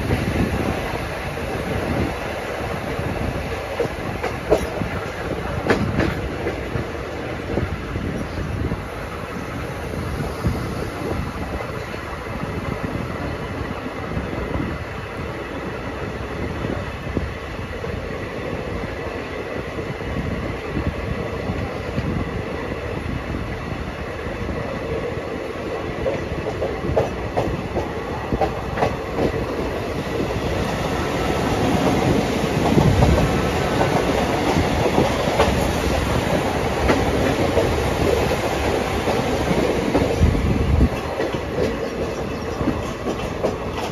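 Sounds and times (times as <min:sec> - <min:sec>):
wheels clickety-clack over rails: 0:00.0 - 0:08.4, 0:25.7 - 0:43.9
train running on track: 0:00.0 - 0:43.9.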